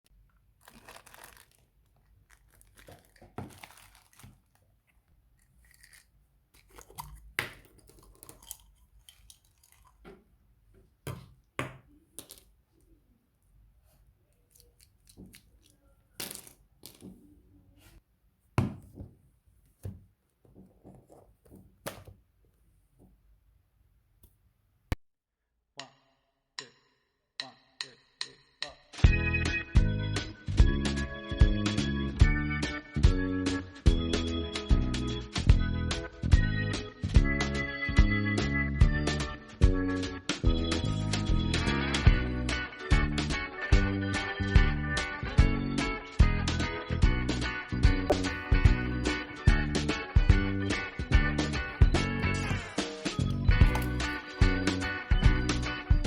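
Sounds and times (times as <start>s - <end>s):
paper rustling: 0.6s - 10.0s, 48.1s - 49.4s, 51.5s - 56.0s.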